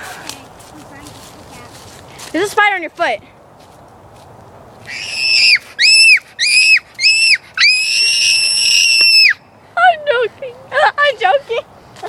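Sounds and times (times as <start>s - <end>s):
girl screaming: 4.9s - 9.4s.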